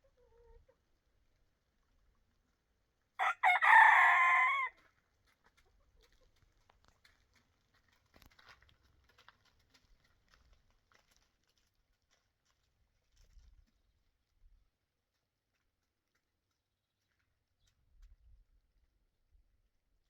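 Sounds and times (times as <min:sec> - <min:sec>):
rooster crowing: 0:03.2 - 0:04.7.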